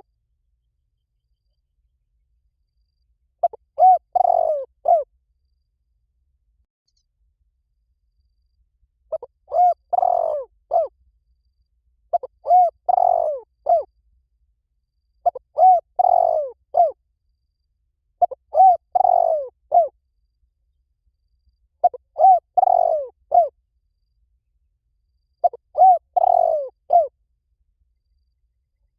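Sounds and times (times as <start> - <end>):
dove cooing: 3.4 - 5.1, 9.1 - 10.9, 12.1 - 13.9, 15.2 - 17.0, 18.2 - 19.9, 21.8 - 23.5, 25.4 - 27.1.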